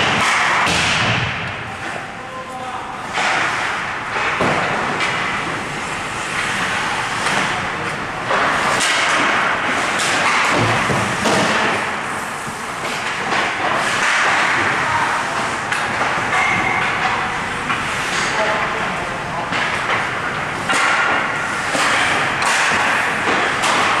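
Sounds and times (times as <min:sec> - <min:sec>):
pucks and sticks thudding: 0:00.0 - 0:24.0
indistinct voices: 0:14.0 - 0:21.0.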